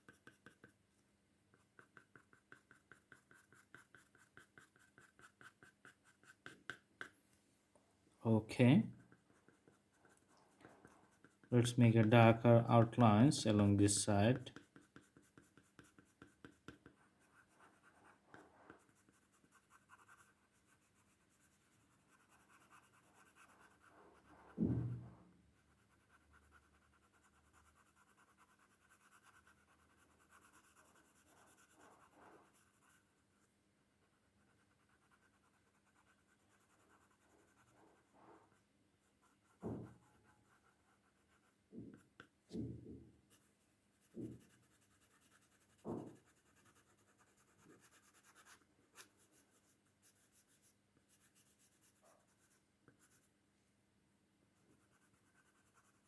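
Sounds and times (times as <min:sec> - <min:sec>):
pencil scratching on paper: 0:00.0 - 0:00.8, 0:01.5 - 0:07.1, 0:08.9 - 0:42.7, 0:43.3 - 0:53.3, 0:54.6 - 0:56.0
soft knocks: 0:24.6 - 0:25.3, 0:39.6 - 0:40.0, 0:41.7 - 0:43.2, 0:44.1 - 0:44.5, 0:45.8 - 0:46.2.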